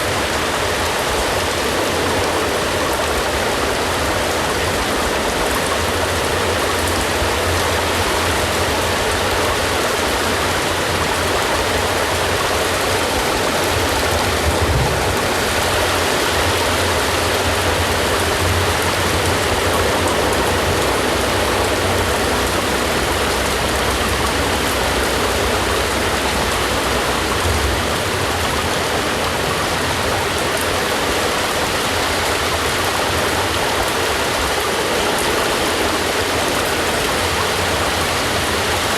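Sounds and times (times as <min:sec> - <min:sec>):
steady rain: 0:00.0 - 0:38.9
low rumble: 0:14.2 - 0:16.5.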